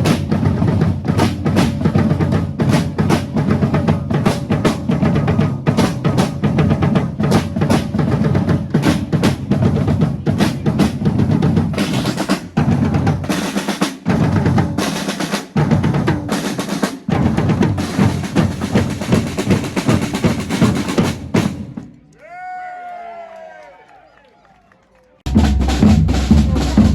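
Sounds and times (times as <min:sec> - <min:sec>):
snare drum rolls: 0:00.0 - 0:22.0, 0:25.3 - 0:26.9
bass drum beat: 0:25.3 - 0:26.9.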